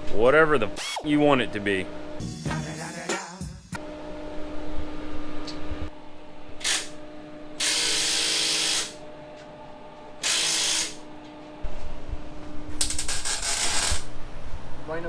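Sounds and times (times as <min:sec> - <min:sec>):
steady low hum: 0:00.0 - 0:02.2, 0:03.8 - 0:15.0
welding arc bursts: 0:06.6 - 0:07.0, 0:07.6 - 0:09.0, 0:10.2 - 0:11.0, 0:12.8 - 0:14.2.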